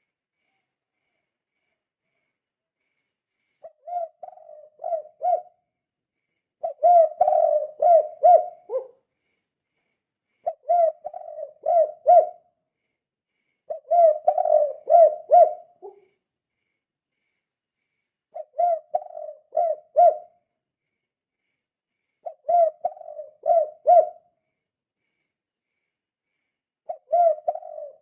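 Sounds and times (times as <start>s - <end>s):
dove cooing: 3.6s - 5.6s, 6.6s - 9.0s, 10.4s - 12.4s, 13.7s - 16.1s, 18.3s - 20.4s, 22.2s - 24.3s, 26.9s - 28.0s.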